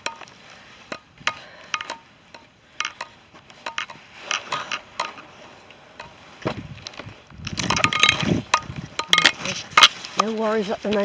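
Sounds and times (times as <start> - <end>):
footsteps on rough ground: 0.0 - 11.0.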